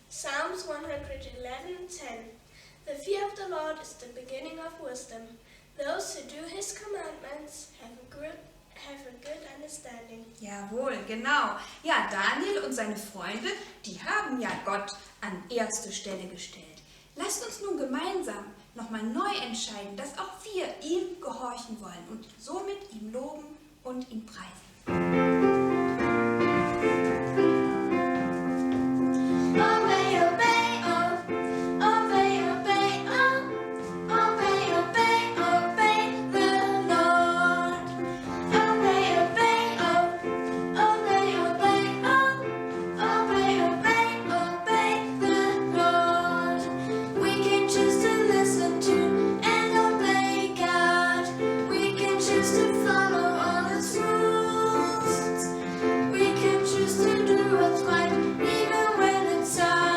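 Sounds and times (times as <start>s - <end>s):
piano chords: 24.9s - 59.9s
woman singing: 29.6s - 55.5s, 56.1s - 59.9s.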